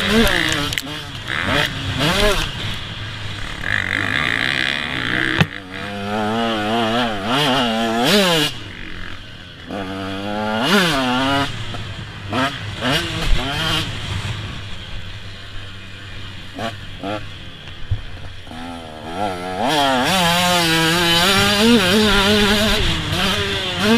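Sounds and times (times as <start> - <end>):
motocross bike engines revving: 0.0 - 23.9.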